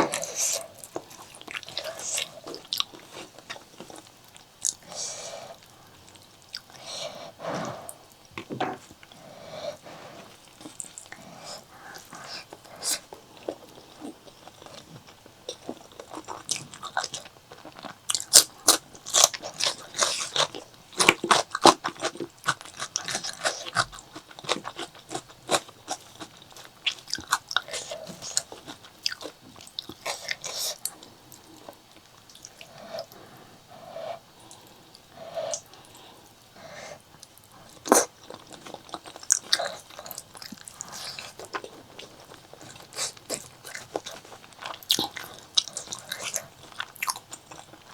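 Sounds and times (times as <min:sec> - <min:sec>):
chewing and crunching food: 0:00.0 - 0:47.9.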